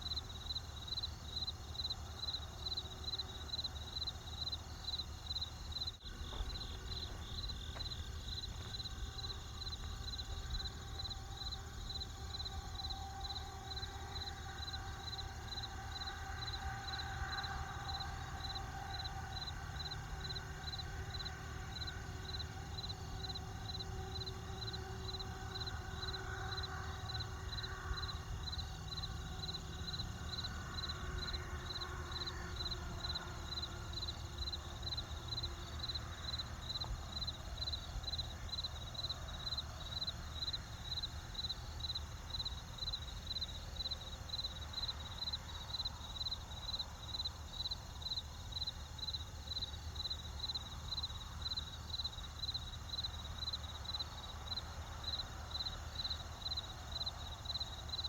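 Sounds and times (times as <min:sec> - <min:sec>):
crickets chirping: 0:00.0 - 0:58.0
low steady rumble: 0:05.4 - 0:40.3.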